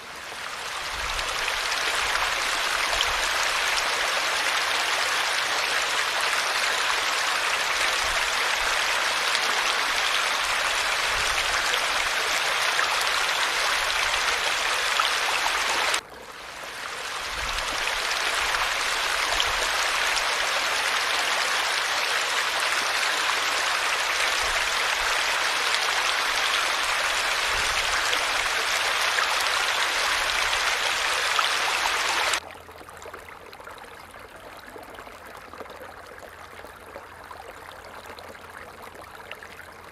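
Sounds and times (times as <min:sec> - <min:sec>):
falling water splashing: 0:00.6 - 0:16.0, 0:16.6 - 0:32.4.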